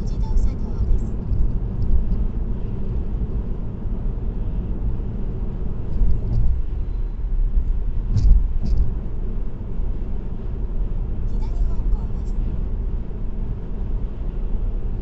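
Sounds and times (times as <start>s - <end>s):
road rumble and tyre hum: 0.0s - 15.0s.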